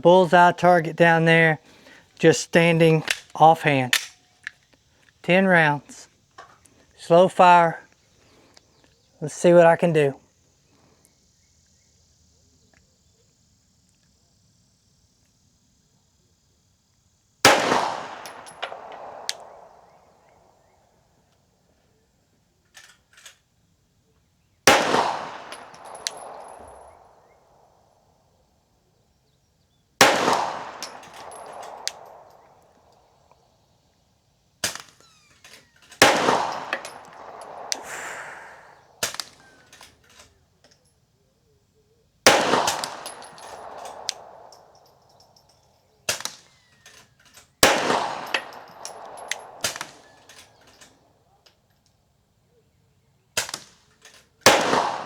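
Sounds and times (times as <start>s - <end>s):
faint distant gunshots: 17.5s - 20.4s, 24.7s - 27.5s, 30.0s - 32.9s, 36.0s - 39.5s, 42.3s - 44.8s, 47.6s - 50.2s, 54.5s - 55.0s
pistol shots with echo: 17.5s - 20.4s, 24.7s - 27.7s, 30.0s - 33.0s, 36.0s - 39.5s, 42.3s - 45.0s, 47.6s - 50.6s, 54.4s - 55.0s.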